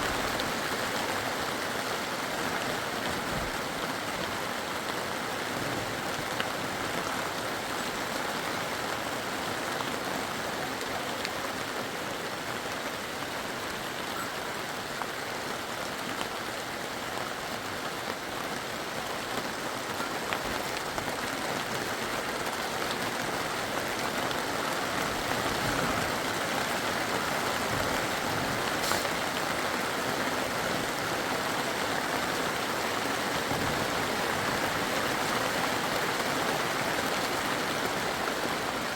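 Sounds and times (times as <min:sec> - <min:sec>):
water hissing: 0:28.8 - 0:29.2.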